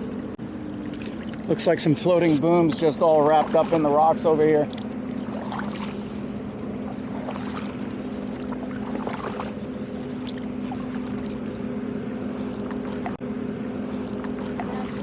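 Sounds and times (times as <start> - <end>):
boat engine humming: 0.0 - 15.0
small water splashes and drips: 0.7 - 1.9, 2.6 - 6.2, 6.8 - 11.5.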